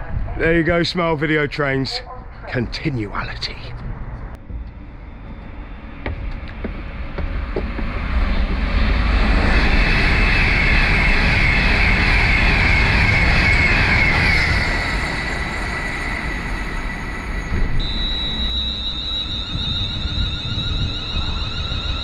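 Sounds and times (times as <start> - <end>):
train passing at speed: 4.8 - 22.0.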